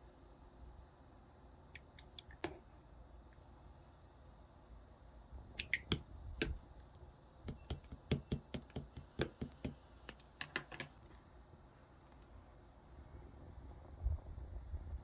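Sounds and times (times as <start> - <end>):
slime clicking and popping: 5.6 - 6.6, 7.5 - 9.8.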